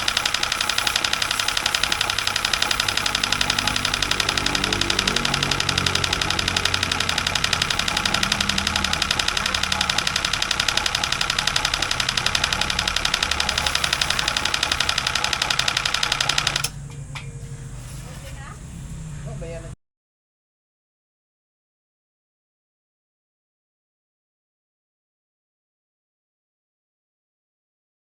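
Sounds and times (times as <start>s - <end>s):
electric motor pulsing: 0.0s - 16.9s.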